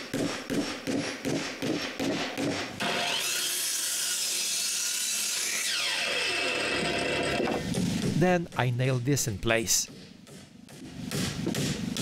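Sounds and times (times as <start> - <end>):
hand saw cutting wood: 2.8 - 6.2
power tool whirring: 2.8 - 7.6.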